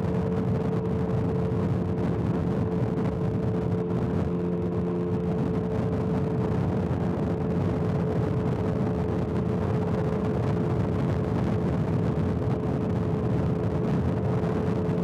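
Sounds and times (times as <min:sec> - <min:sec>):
motorcycle engine droning: 0:00.0 - 0:11.3.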